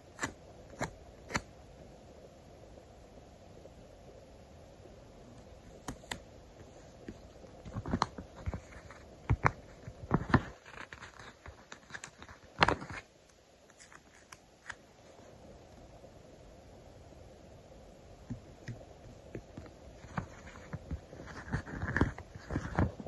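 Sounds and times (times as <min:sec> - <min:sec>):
stickers crinkling and peeling: 0:07.0 - 0:14.8, 0:19.6 - 0:23.0.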